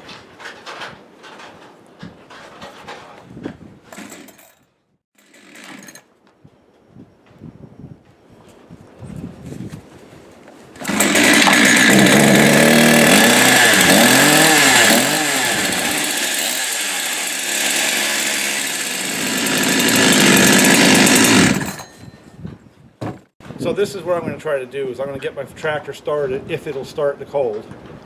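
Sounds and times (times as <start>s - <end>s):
chainsaw revving: 3.9s - 4.4s, 5.2s - 6.0s, 10.8s - 21.9s.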